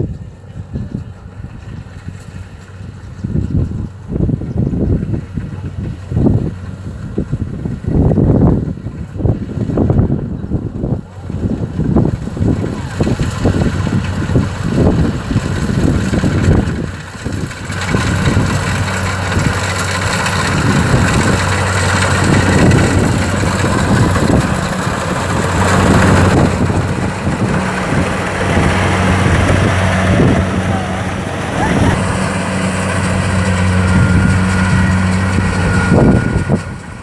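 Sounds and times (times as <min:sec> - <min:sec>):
combine harvester diesel engine: 0:00.0 - 0:37.0
wind buffeting microphone: 0:00.0 - 0:37.0
threshing noise: 0:11.7 - 0:37.0.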